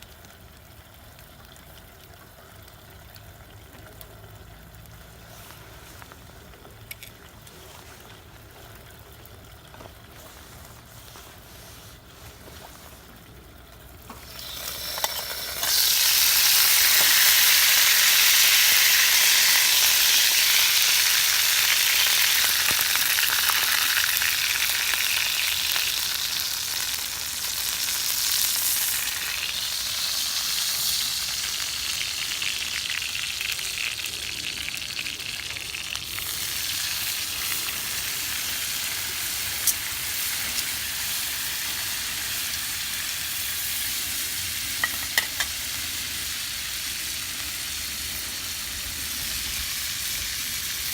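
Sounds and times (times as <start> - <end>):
food sizzling in hot pan: 14.0 - 50.9.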